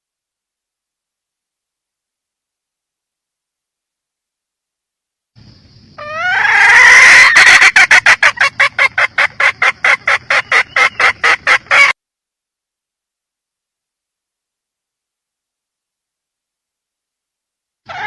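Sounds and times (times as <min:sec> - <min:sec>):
hen squawking and cackling: 0:06.0 - 0:12.0.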